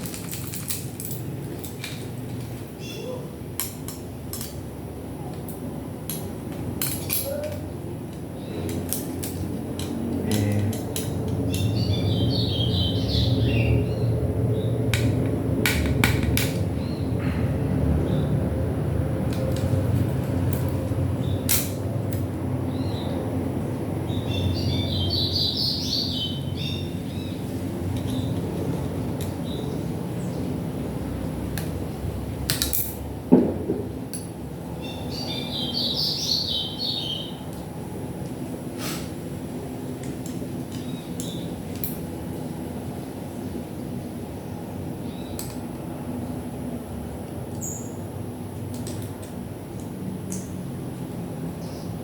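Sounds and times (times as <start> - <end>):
small tools clicking and knocking: 0.0 - 2.7, 3.6 - 4.7, 5.3 - 11.8, 14.9 - 16.7, 19.3 - 22.4, 27.9 - 29.5, 32.4 - 33.1, 40.0 - 42.5, 45.4 - 45.7, 48.5 - 50.6
bird chirping: 2.8 - 3.3, 11.5 - 14.8, 24.0 - 28.4, 34.8 - 37.4, 47.6 - 48.0.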